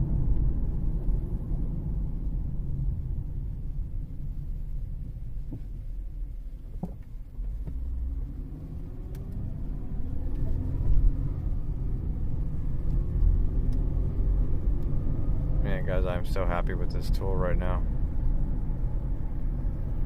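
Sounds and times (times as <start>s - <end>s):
road and drivetrain rumble: 0.0s - 20.0s
car engine revving up: 7.5s - 20.0s.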